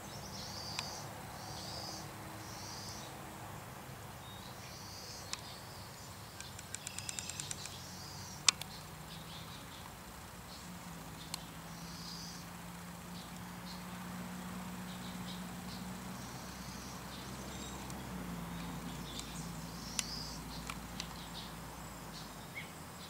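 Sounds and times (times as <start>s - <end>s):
quick ticks: 6.4s - 7.8s
sharp click: 6.4s - 7.8s, 8.4s - 8.8s.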